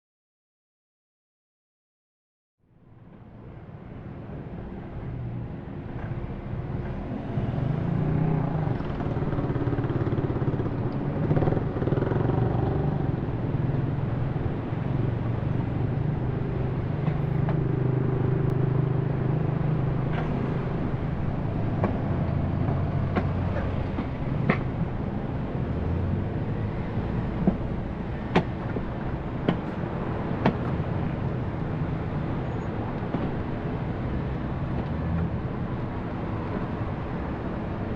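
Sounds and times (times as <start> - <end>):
car engine and road noise: 2.6 - 37.9.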